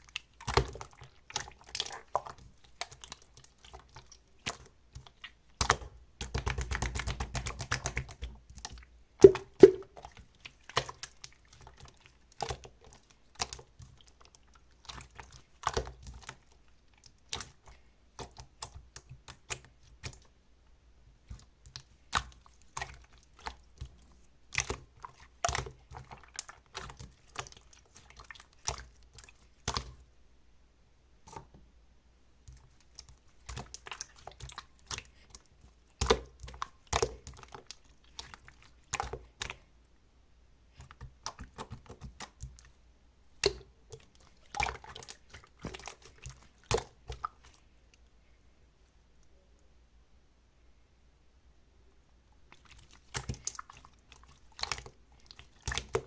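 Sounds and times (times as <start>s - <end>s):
clicks and taps: 9.2s - 9.9s.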